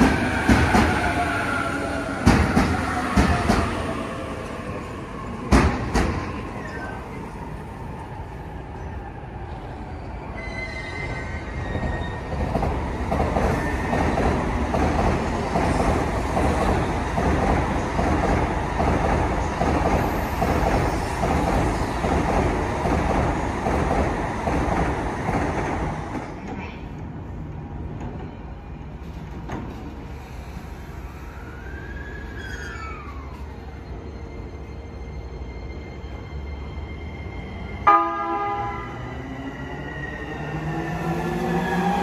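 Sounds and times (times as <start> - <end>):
train wheels rumbling and clacking: 0.0 - 7.0, 11.6 - 30.6.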